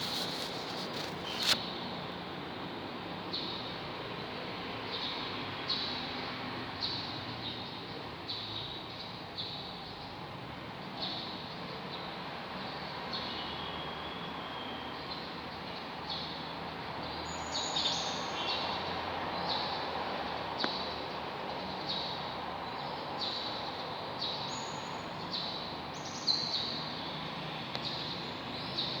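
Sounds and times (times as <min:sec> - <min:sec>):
lovebirds chirping: 0:00.0 - 0:01.8.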